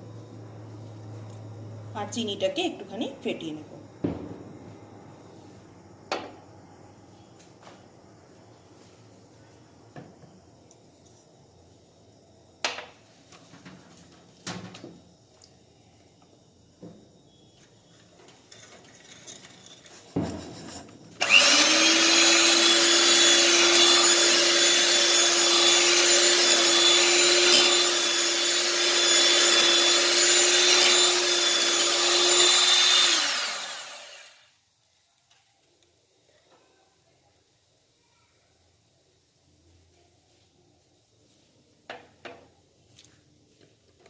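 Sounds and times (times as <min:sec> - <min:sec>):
single knock: 0:04.0 - 0:04.4
electric mixer beating: 0:21.2 - 0:34.4.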